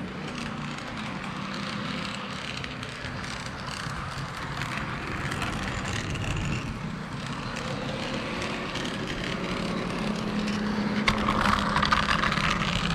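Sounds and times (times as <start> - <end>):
model train wheels rumbling on rail: 0.0 - 12.9.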